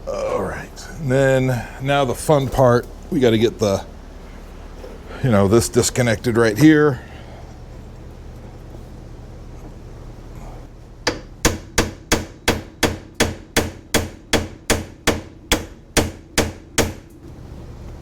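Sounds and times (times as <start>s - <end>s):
hammer striking metal: 11.0s - 17.1s.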